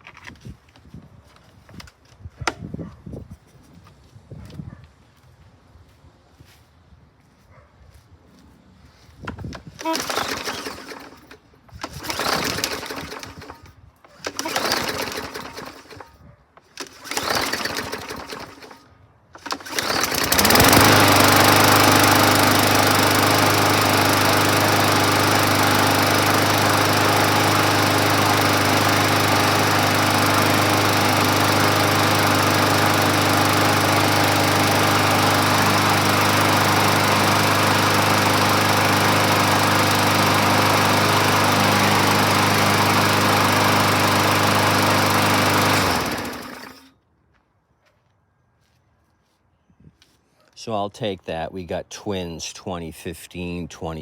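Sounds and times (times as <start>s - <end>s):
mower engine pull cranking: 9.3s - 47.0s
mower engine running: 9.6s - 46.9s.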